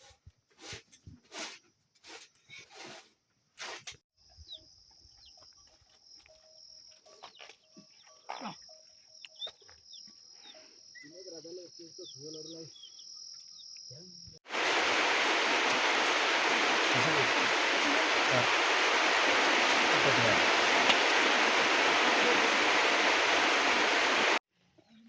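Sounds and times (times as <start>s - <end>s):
insects droning: 4.2s - 24.4s
rushing water: 14.5s - 24.4s
distant voice: 14.6s - 24.4s.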